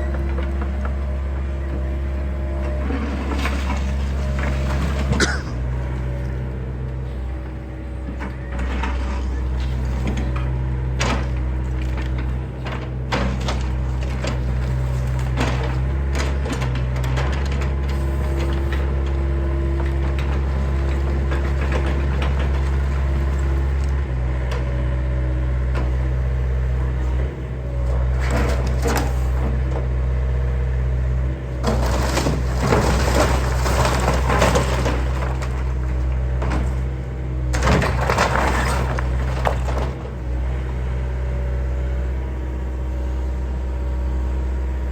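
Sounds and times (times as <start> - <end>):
excavator diesel engine running: 0.0 - 44.9
wood cracking and splintering: 31.6 - 40.2.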